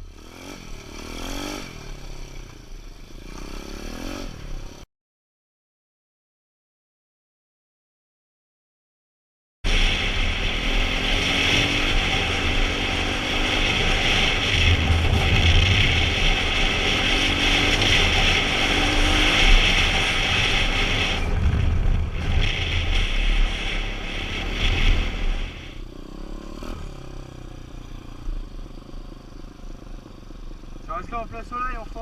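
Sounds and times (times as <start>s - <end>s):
dirt bike engine revving: 0.0s - 4.8s, 9.7s - 28.6s
wind rumble: 9.7s - 25.8s.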